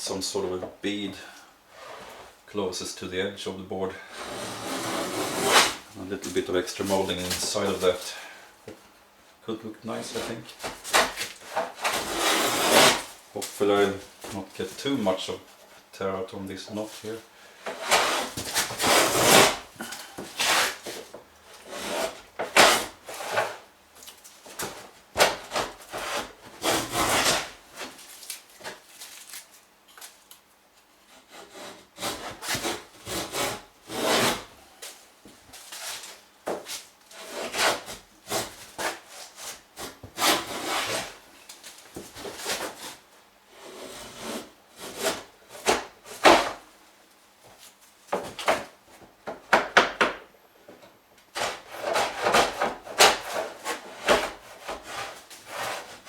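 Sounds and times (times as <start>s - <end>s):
wooden plane cutting wood: 4.1s - 5.8s, 10.2s - 13.1s, 17.7s - 20.9s, 21.6s - 23.6s, 25.2s - 27.6s, 31.3s - 34.5s, 51.4s - 56.0s.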